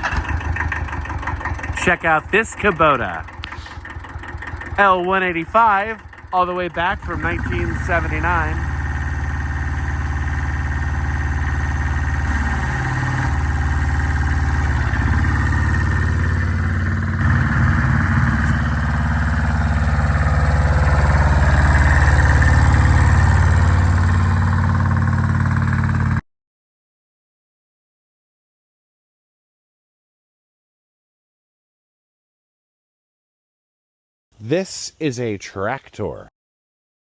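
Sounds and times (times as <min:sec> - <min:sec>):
tractor diesel engine running: 0:00.0 - 0:26.2.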